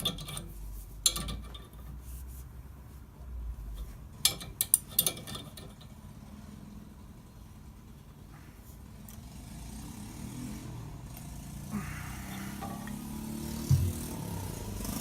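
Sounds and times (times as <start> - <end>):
engine low drone: 8.0 - 15.0.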